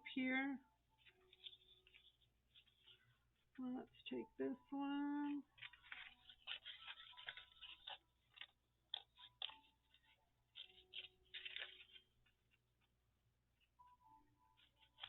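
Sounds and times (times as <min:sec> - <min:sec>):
paper rustling and tapping: 0:01.0 - 0:03.1, 0:05.3 - 0:13.0, 0:14.6 - 0:15.0.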